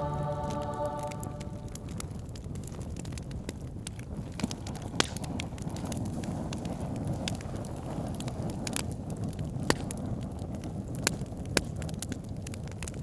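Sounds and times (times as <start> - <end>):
low fire rumble: 0.0 - 13.0
fire crackling and popping: 0.1 - 13.0.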